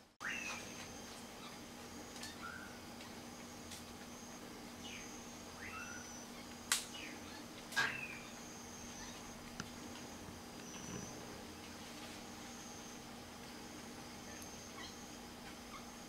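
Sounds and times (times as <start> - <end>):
falling bird chirps: 0.2 - 1.6, 4.8 - 9.3.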